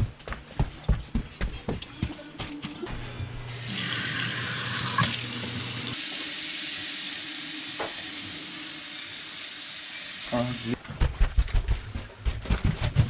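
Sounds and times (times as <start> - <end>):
water rushing into drain: 3.6 - 10.8.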